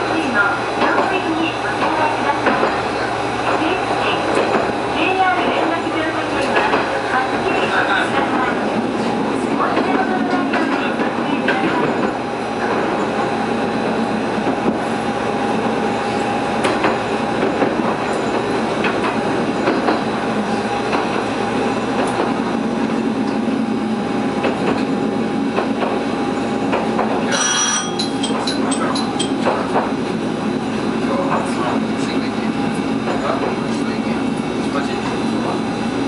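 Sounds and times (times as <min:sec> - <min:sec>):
diesel railcar running: 0:00.0 - 0:36.0
clacks over rail joints: 0:00.8 - 0:02.8, 0:04.3 - 0:13.3, 0:16.6 - 0:20.2, 0:24.4 - 0:26.1, 0:26.7 - 0:30.0.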